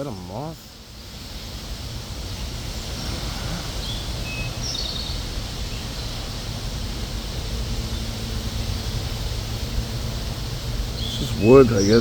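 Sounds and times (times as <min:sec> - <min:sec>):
low outdoor noise: 0:00.0 - 0:12.0
faint bird chirps: 0:02.2 - 0:06.5, 0:10.8 - 0:12.0.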